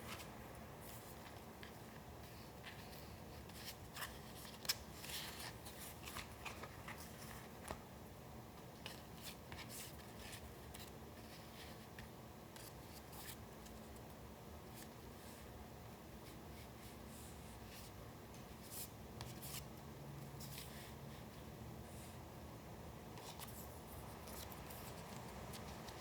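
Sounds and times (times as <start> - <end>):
paper rustling and crinkling: 0.0 - 7.8.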